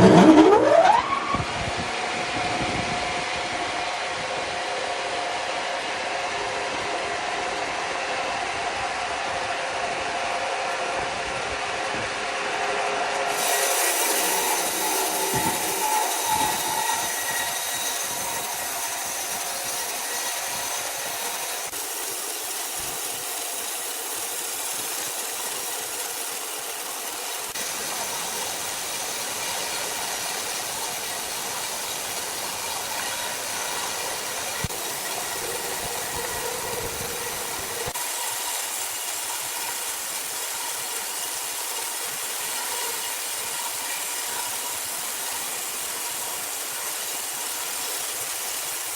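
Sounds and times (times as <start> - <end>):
power saw cutting wood: 0.0 - 1.6, 12.2 - 48.9.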